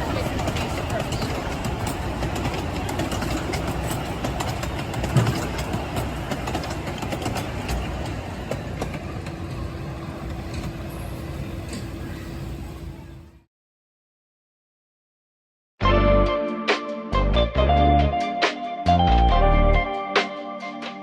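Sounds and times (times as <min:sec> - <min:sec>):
wheel clicks: 0:00.0 - 0:09.0
ride train rumbling on track: 0:00.0 - 0:13.5.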